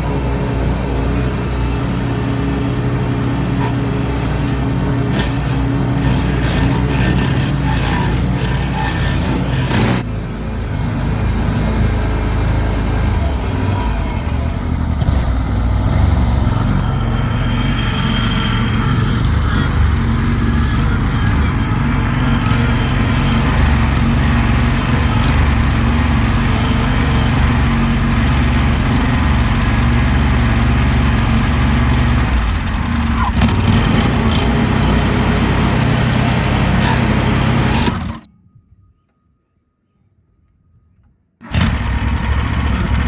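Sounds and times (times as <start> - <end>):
lawn mower engine running: 0.0 - 38.3, 41.4 - 43.0.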